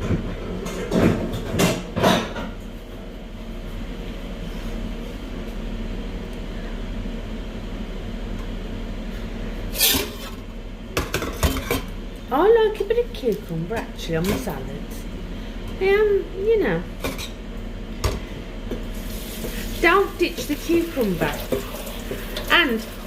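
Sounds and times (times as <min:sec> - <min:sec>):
kitchen tap running: 0:18.9 - 0:23.0.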